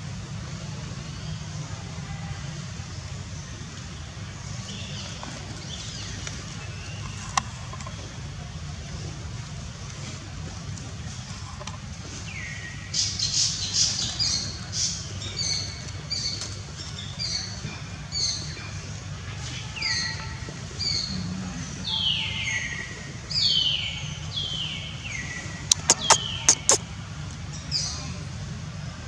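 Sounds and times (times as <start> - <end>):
bird calling: 25.4 - 26.8
sharp clicks: 25.7 - 26.8.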